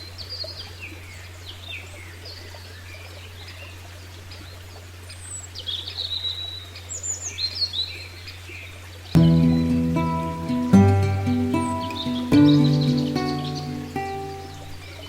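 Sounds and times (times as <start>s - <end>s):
birds chirping and trilling: 9.2s - 15.0s
music with sustained notes: 9.2s - 15.0s.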